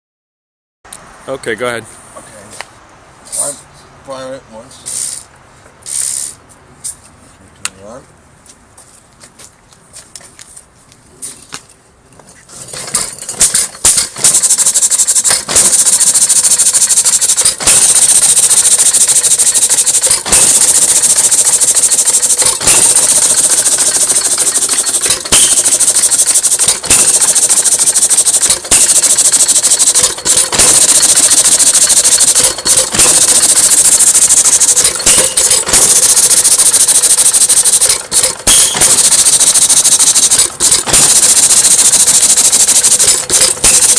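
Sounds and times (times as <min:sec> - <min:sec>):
old engine running with hiss: 0:04.7 - 0:07.0, 0:12.1 - 0:43.9.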